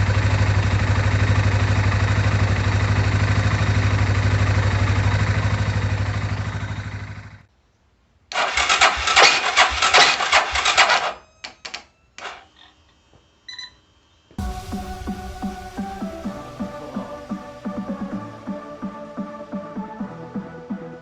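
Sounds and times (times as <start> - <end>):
motorcycle engine running: 0.0 - 7.5
loud rough clattering: 8.3 - 11.2.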